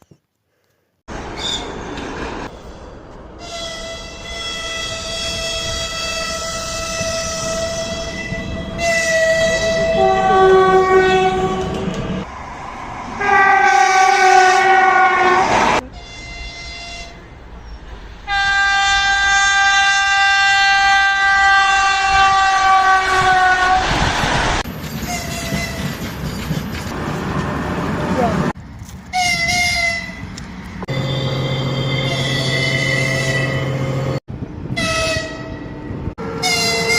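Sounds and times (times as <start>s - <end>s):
train air horn blasts: 3.4s - 11.9s, 13.2s - 17.2s, 18.3s - 23.9s, 29.1s - 30.2s, 30.9s - 34.0s, 34.7s - 36.9s.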